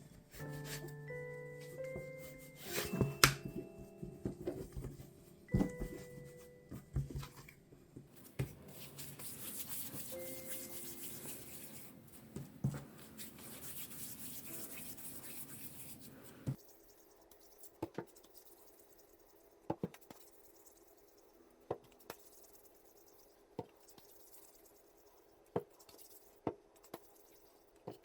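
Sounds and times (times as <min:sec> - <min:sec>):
hands rubbing dough: 0:08.2 - 0:28.0.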